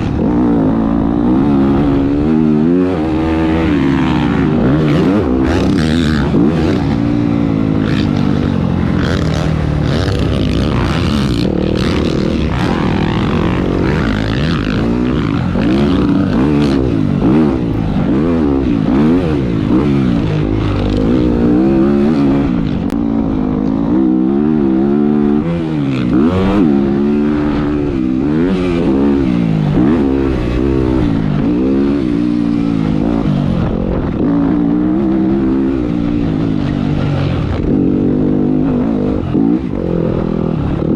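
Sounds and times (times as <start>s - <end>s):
motocross bike engine revving: 0.0s - 40.9s.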